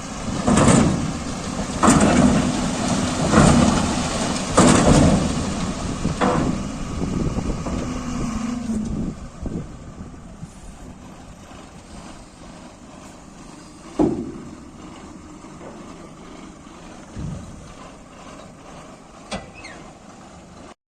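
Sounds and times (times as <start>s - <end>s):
heavy diesel machinery running: 0.0s - 20.8s
smaller knocks: 0.3s - 6.7s, 13.8s - 16.0s.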